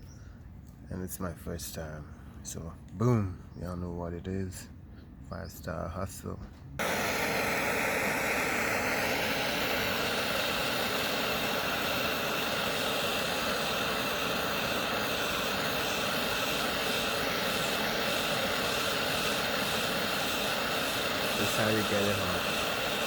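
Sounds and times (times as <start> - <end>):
torch flame rushing: 6.8 - 23.0.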